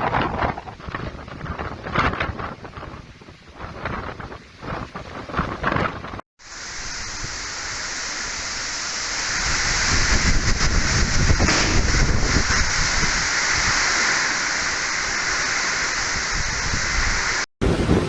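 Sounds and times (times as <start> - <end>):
heavy rain pouring: 6.4 - 18.0
low rumble: 11.3 - 13.2.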